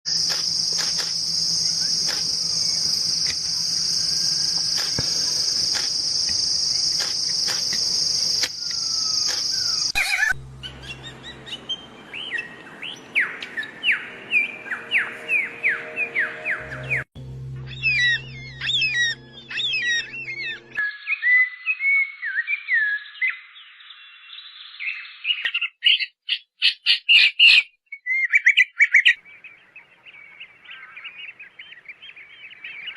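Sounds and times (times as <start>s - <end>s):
high-pitched buzz: 0.1s - 12.6s, 14.0s - 20.8s.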